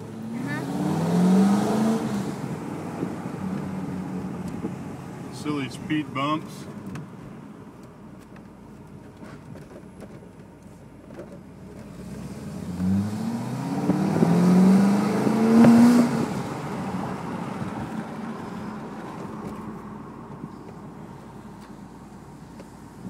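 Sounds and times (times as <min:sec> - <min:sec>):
car engine accelerating: 0:00.0 - 0:10.4, 0:11.0 - 0:23.0
road and wind noise: 0:00.0 - 0:23.0.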